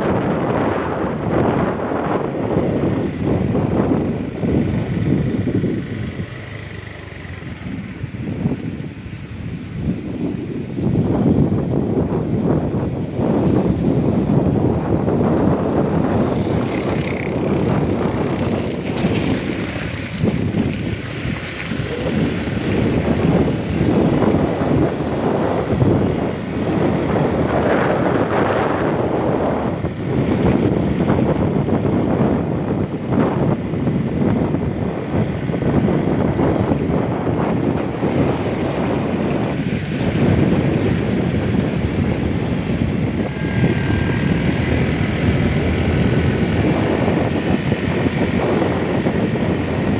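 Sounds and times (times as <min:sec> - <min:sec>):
wind buffeting microphone: 0:00.0 - 0:49.9
low steady rumble: 0:40.3 - 0:49.9
faint high tone: 0:43.2 - 0:45.6.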